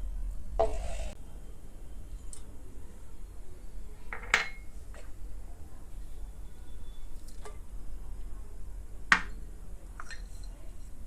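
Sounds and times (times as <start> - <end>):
low steady hum: 0.0 - 11.0
utensils clinking on cookware: 4.1 - 4.7, 10.0 - 10.8.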